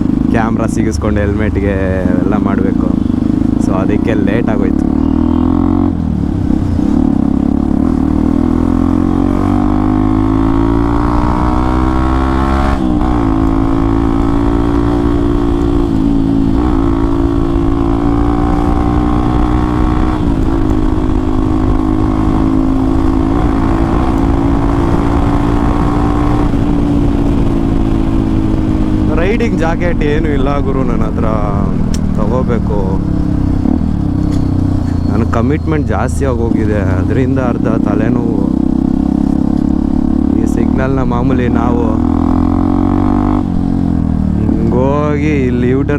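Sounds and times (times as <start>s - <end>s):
motorcycle engine while riding: 0.0s - 45.9s.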